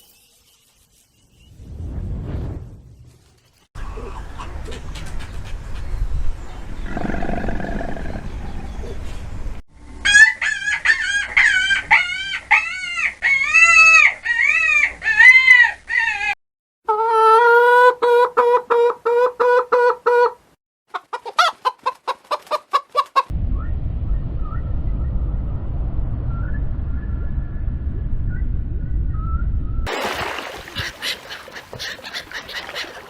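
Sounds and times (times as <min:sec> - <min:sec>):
chickens squawking and clucking: 0:10.0 - 0:23.3, 0:30.0 - 0:33.0
steady low noise: 0:23.3 - 0:29.8.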